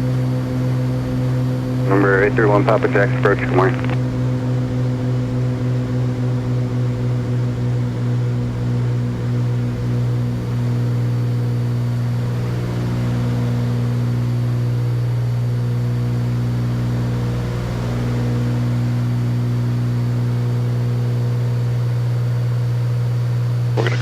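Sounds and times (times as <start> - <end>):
propeller plane engines droning: 0.0 - 20.2, 23.8 - 24.0.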